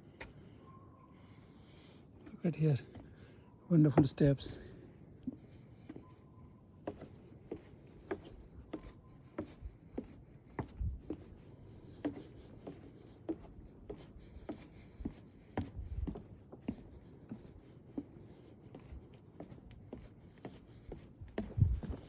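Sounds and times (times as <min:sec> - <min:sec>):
footsteps on wooden boardwalk: 0:03.8 - 0:06.2, 0:06.8 - 0:22.0.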